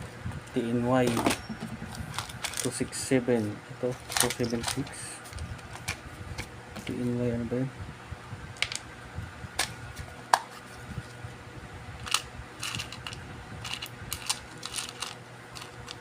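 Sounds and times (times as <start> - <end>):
faint electrical hum: 0.0 - 16.0
small hard objects clicking: 12.0 - 16.0.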